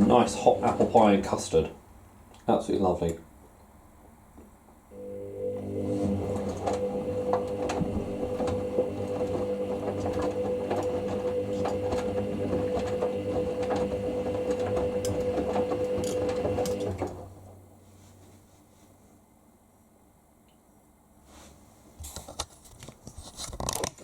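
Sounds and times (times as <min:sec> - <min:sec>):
washing machine motor whine: 0:00.0 - 0:01.5, 0:04.9 - 0:17.6.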